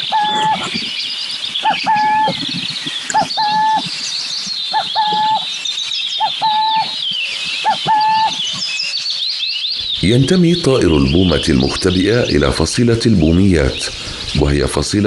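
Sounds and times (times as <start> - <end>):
owl two-note cooing: 0.0 - 0.8, 1.6 - 3.9, 4.7 - 5.5, 6.2 - 8.7
high thin bird chirps: 0.0 - 12.5.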